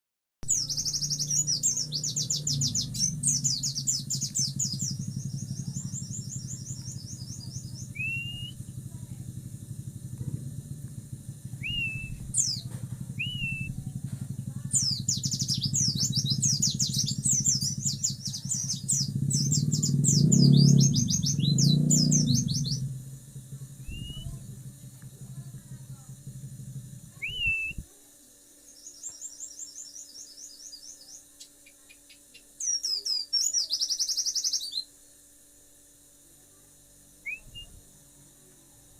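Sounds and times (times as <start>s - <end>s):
bird twittering song: 0.4s - 27.8s, 28.6s - 35.0s, 37.2s - 37.8s
low rumble: 1.0s - 27.8s
bird rising whistled notes: 6.5s - 8.6s, 11.6s - 12.6s, 13.2s - 13.8s, 23.8s - 24.4s, 27.2s - 27.8s, 37.2s - 37.8s.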